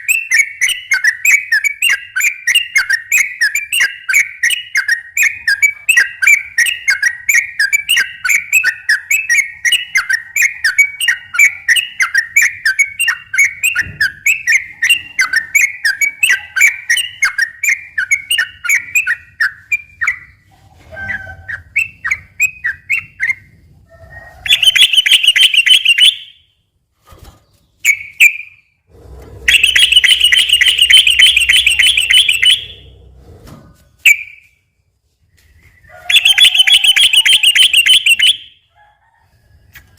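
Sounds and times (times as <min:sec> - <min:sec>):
bulbul chirping: 0:24.5 - 0:26.4, 0:29.4 - 0:33.0, 0:36.1 - 0:38.6.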